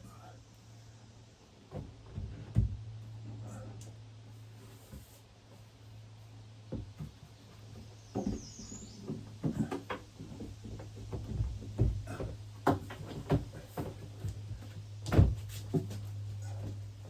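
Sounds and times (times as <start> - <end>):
steady low hum: 0.0 - 17.0
knocks and taps on wooden parts: 8.1 - 16.0.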